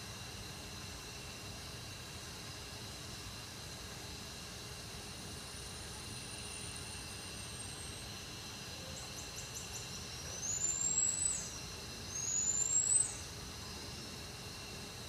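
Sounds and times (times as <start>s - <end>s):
steady hiss and hum: 0.0s - 15.0s
bird chirping and whistling: 12.2s - 13.2s.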